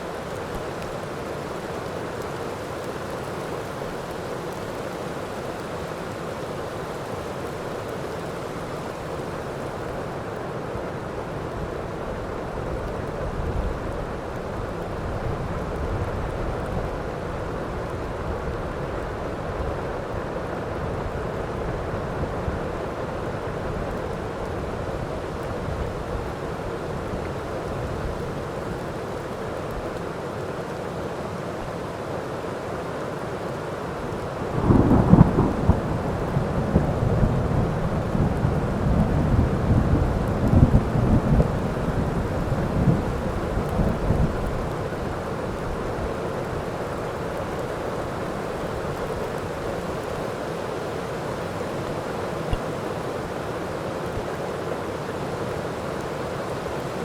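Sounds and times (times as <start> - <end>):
heavy rain falling: 0.0 - 57.0
rolling thunder: 34.6 - 44.8.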